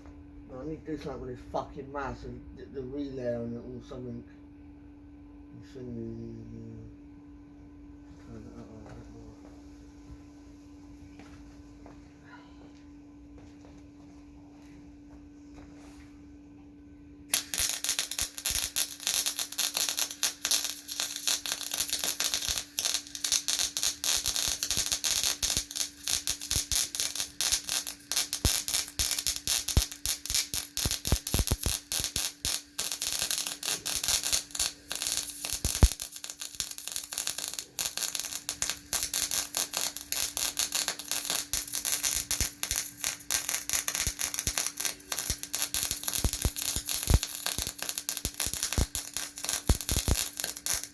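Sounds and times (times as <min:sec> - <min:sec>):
steady hum: 0:00.0 - 0:50.9
welding arc crackling: 0:17.3 - 0:50.9.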